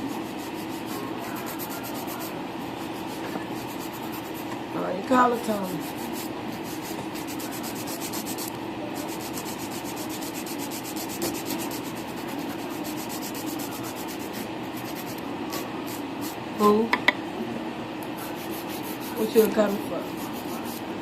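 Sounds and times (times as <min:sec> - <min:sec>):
nails being filed: 0:05.6 - 0:16.4, 0:18.3 - 0:20.9.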